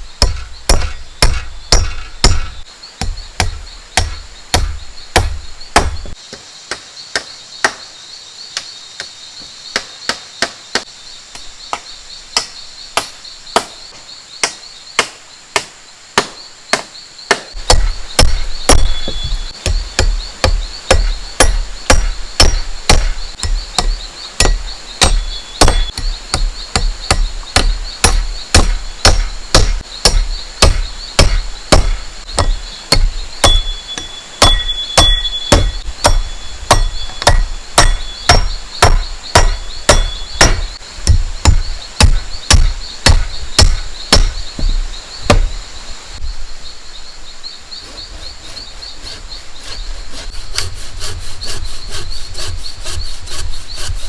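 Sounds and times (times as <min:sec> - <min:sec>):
insects buzzing: 0:00.0 - 0:54.0
tool striking bamboo: 0:00.2 - 0:07.9, 0:14.4 - 0:45.5.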